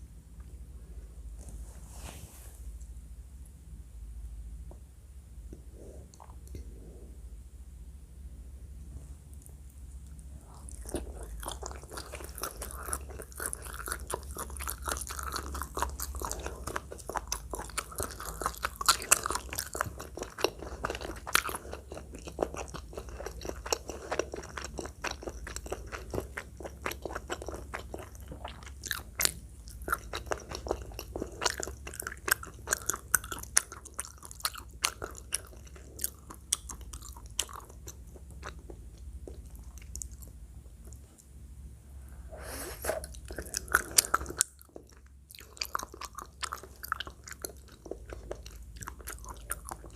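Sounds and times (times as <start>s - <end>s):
low hum: 0.0s - 13.4s
person chewing food: 9.3s - 41.4s, 42.4s - 49.9s.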